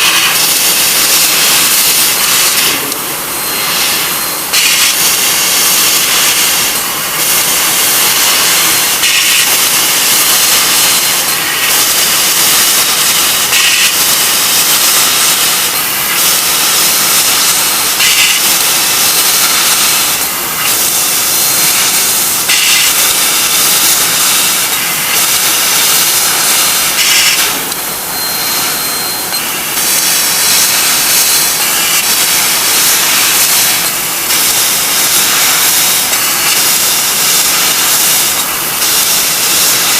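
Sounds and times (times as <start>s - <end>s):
laser cutter hissing: 0.0s - 39.9s.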